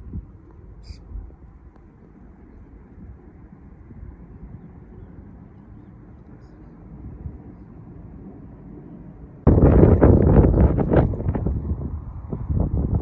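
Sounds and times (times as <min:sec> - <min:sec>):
wind buffeting microphone: 0:00.0 - 0:01.6, 0:09.4 - 0:13.0
wind blowing across meadow: 0:09.2 - 0:13.0.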